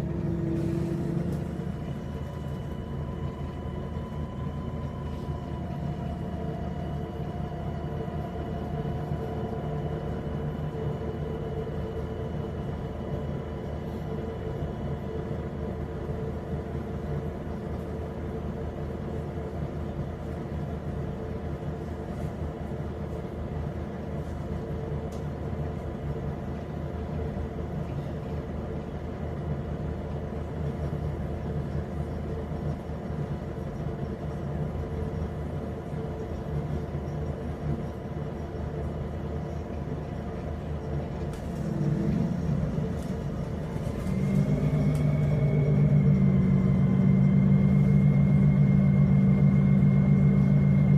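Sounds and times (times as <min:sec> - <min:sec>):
bus engine running: 0:00.0 - 0:50.9
short rising whine: 0:41.5 - 0:50.9.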